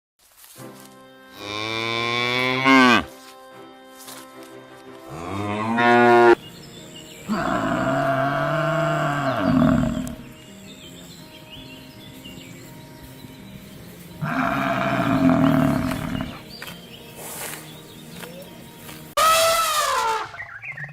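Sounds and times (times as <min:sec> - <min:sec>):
cattle mooing: 0:01.5 - 0:03.1, 0:05.1 - 0:06.4, 0:07.3 - 0:10.2, 0:14.2 - 0:16.4.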